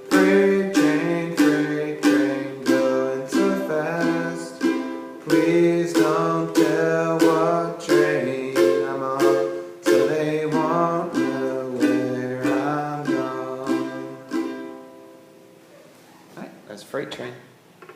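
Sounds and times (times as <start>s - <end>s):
ukulele strumming: 0.0s - 15.5s.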